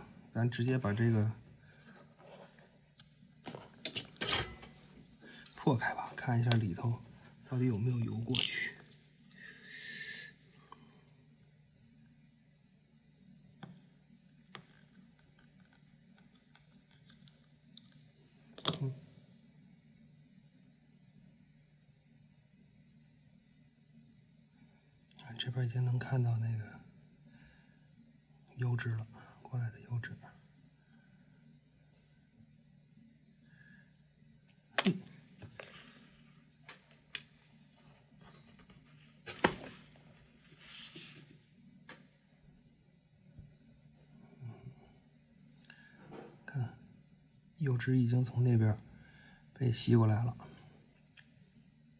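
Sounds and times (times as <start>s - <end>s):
faint low hum: 0.0s - 51.9s
clicks and knocks of tools: 3.5s - 4.8s
small ticks and scratches: 14.3s - 18.8s, 35.4s - 41.5s.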